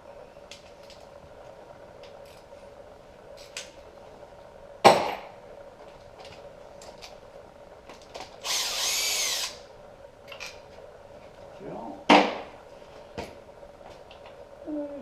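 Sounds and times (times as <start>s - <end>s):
cordless power tool spinning: 8.4s - 9.6s.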